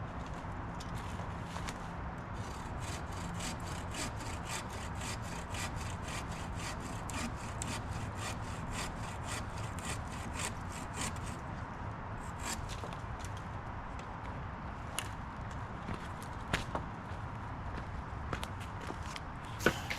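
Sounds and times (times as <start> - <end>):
hand saw cutting wood: 2.4 - 11.4, 12.2 - 12.8, 19.6 - 19.9.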